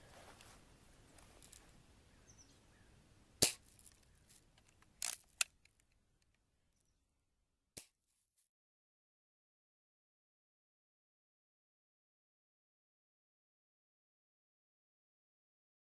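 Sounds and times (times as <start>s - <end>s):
air gun firing: 3.4s - 3.7s.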